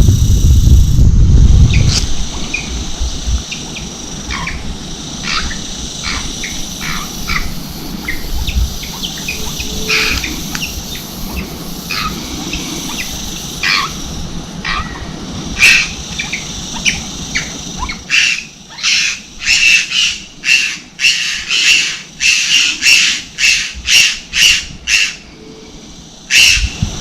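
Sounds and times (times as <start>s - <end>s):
low rumble: 0.0s - 3.5s
high insect buzz: 0.0s - 27.0s
birds chirping: 1.5s - 27.0s.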